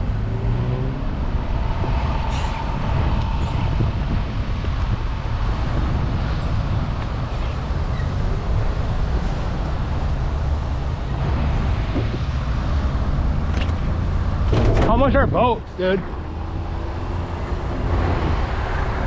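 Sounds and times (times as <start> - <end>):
road and traffic noise: 0.0 - 19.0
wind buffeting microphone: 0.0 - 19.0.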